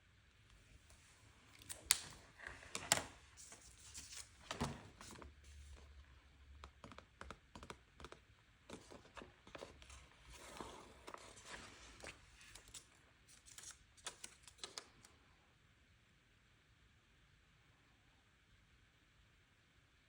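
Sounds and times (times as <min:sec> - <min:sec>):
paper rustling: 0:01.0 - 0:05.9, 0:08.7 - 0:15.0
small clicks and taps: 0:06.6 - 0:09.7.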